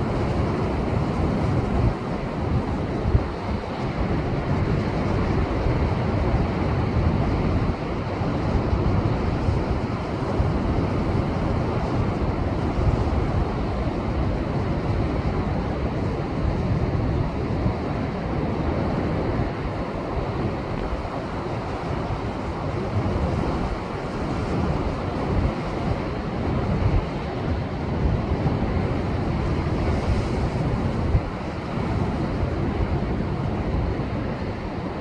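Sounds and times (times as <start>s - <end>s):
wind buffeting microphone: 0.0s - 35.0s
surf surging against rocks: 17.7s - 35.0s.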